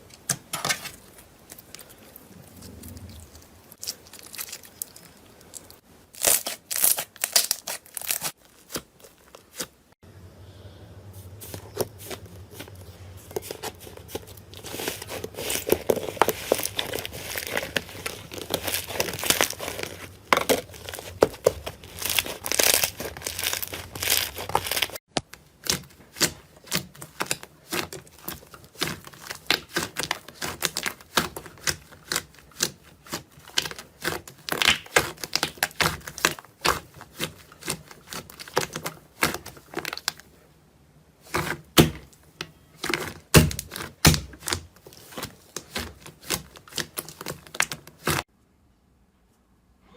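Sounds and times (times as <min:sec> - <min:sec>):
slime squishing and crackling: 0:01.1 - 0:09.8, 0:11.4 - 0:40.3, 0:41.2 - 0:48.3.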